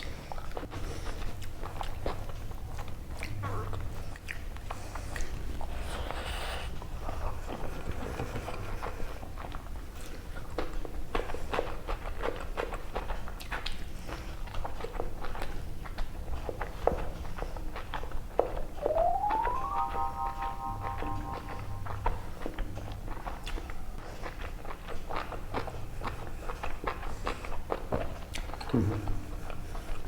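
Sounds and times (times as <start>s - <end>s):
person chewing food: 7.4s - 17.9s.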